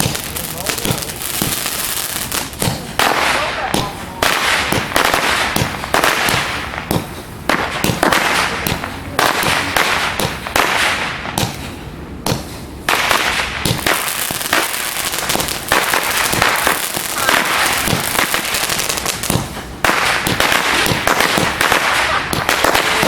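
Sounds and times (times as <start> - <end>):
firework reports in air: 0.0 - 6.5, 15.3 - 19.6, 20.3 - 23.0.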